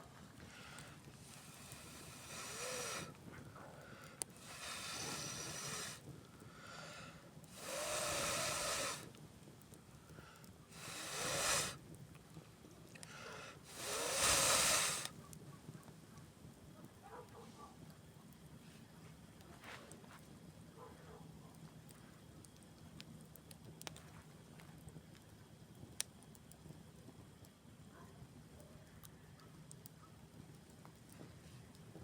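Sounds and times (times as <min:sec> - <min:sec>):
hissing breath rushes: 0:00.4 - 0:09.2, 0:10.0 - 0:11.8, 0:13.0 - 0:15.2.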